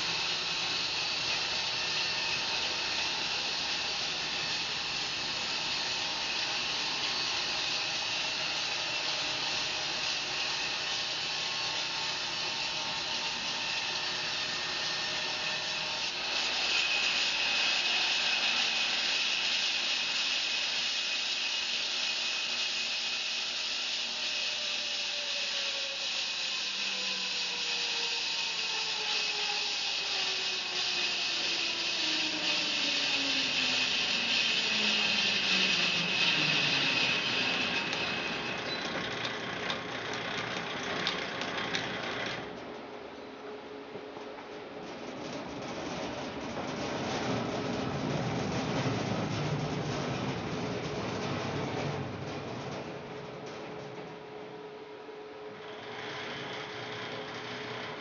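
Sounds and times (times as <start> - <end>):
bandsaw blade sawing log: 11.8 - 27.9, 29.0 - 38.6.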